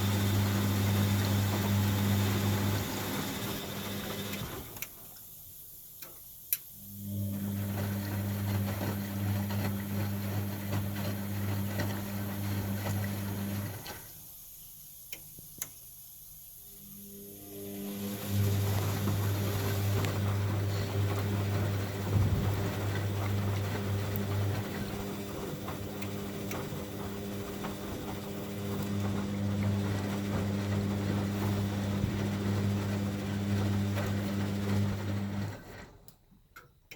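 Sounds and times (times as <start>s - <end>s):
washing machine motor hum: 0.0s - 5.2s, 6.8s - 14.2s, 16.7s - 36.1s.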